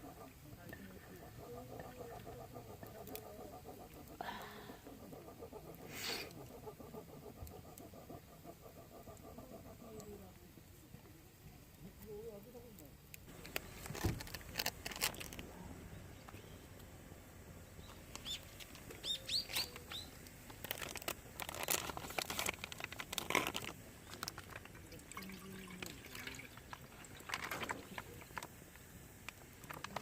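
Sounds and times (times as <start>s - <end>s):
bird chirping: 17.5s - 20.3s.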